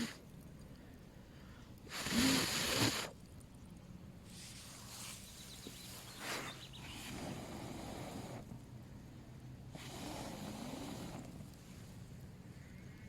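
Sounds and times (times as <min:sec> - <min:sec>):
person blowing out air: 0:01.9 - 0:03.2.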